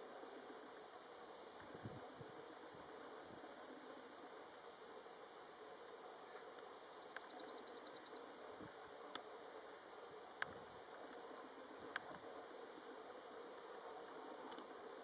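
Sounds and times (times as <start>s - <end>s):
bird singing: 6.7s - 9.6s.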